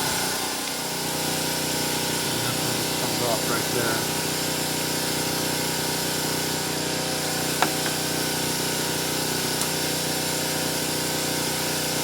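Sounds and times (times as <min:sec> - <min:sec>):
machine hum: 0:00.0 - 0:05.5.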